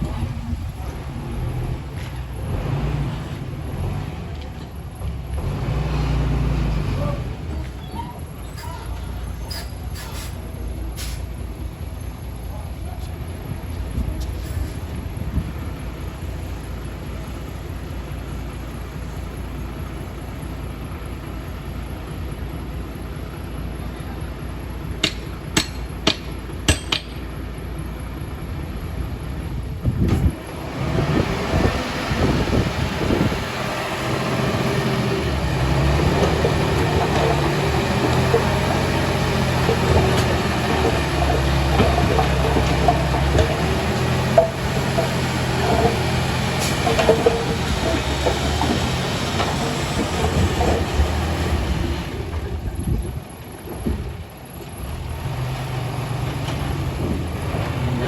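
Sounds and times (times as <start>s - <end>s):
heavy diesel machinery rumbling: 0.0s - 58.0s
steel tracks clanking and squeaking: 0.1s - 15.3s, 24.8s - 27.4s, 30.0s - 55.5s
sharp metallic clanks: 25.0s - 27.2s, 36.0s - 51.3s.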